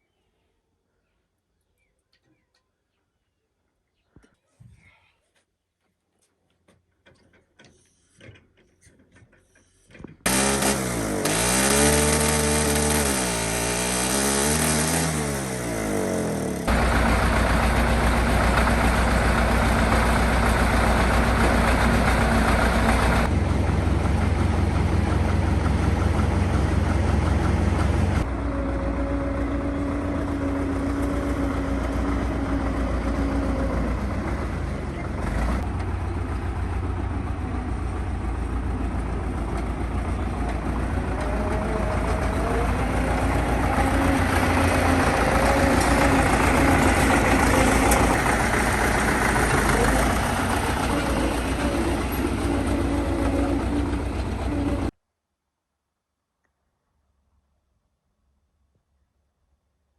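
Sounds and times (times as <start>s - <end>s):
tractor engine running: 10.2s - 55.0s.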